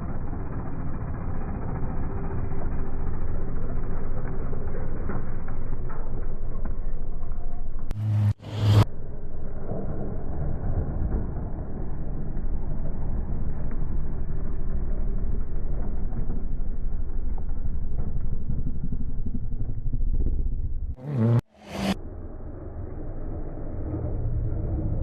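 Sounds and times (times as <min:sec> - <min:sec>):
engine and road rumble: 0:00.0 - 0:25.0.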